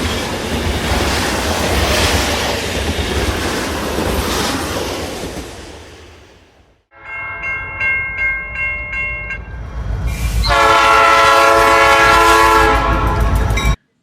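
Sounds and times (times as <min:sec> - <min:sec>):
locomotive horn: 0:10.4 - 0:13.8.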